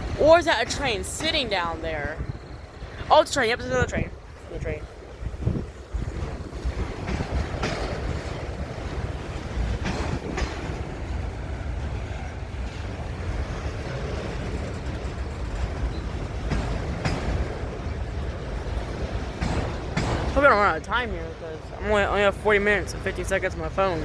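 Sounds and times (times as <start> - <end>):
train cars rumbling on rails: 0.0 - 24.0
wheels clicking over track: 0.0 - 24.0.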